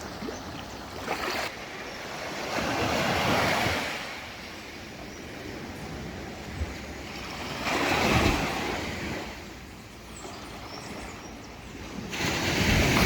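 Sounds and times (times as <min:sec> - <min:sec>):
ocean waves rumbling onto shore: 0:00.0 - 0:13.0
wind on microphone: 0:10.4 - 0:13.0.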